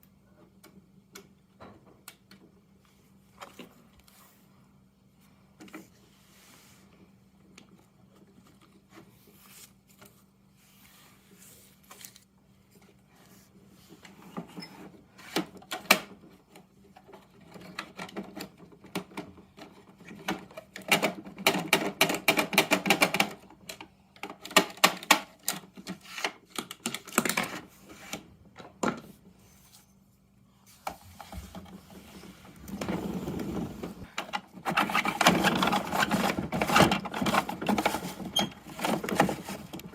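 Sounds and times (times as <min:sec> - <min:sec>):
plastic toy truck clicking and rattling: 0:15.2 - 0:28.2, 0:34.1 - 0:39.9.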